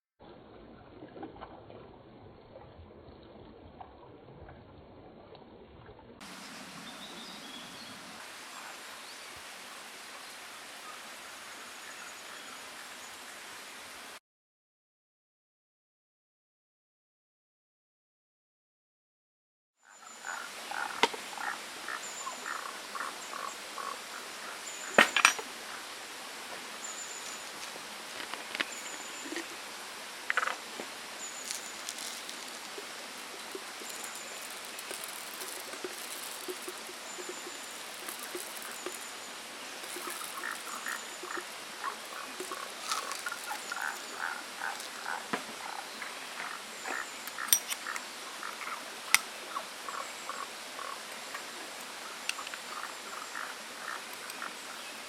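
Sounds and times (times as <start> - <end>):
small stream rushing: 6.2 - 14.2, 19.9 - 55.0
frogs calling: 19.9 - 26.0, 26.7 - 54.9.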